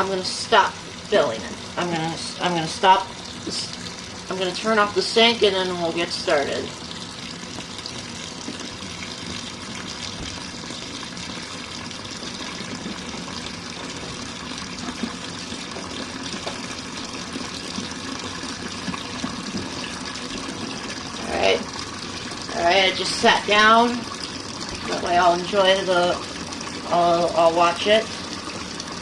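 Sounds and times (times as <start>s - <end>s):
water running from faucet into tub: 0.0s - 29.0s.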